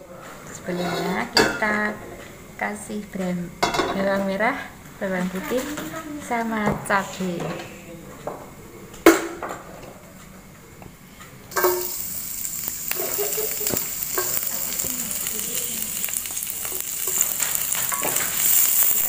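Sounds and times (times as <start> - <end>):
food sizzling in hot oil: 11.5 - 19.0.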